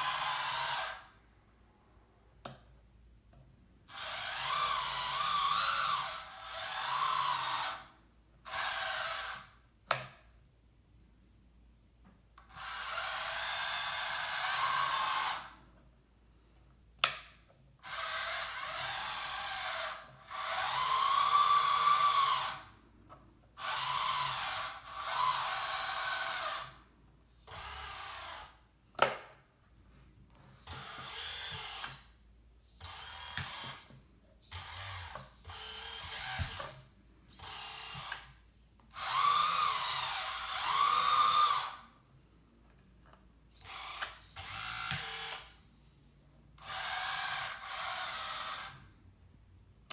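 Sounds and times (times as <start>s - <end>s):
electric motors whirring: 30.7s - 32.1s, 32.8s - 36.8s, 37.4s - 38.4s, 39.0s - 41.8s, 43.6s - 45.6s.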